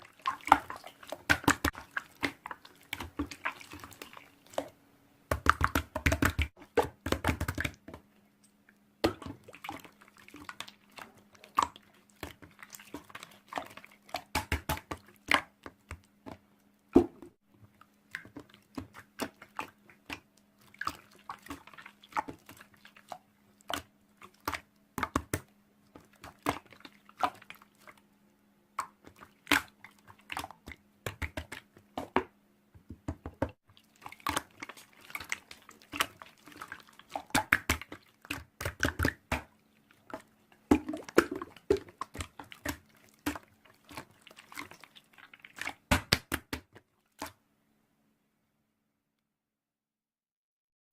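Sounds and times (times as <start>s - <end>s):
faint steady hum: 17.5s - 31.1s.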